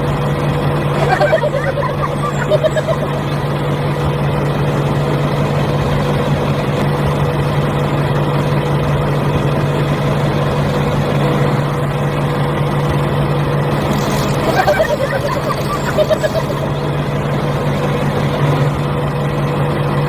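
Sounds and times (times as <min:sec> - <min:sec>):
motor humming: 0:00.1 - 0:06.8, 0:13.5 - 0:18.8.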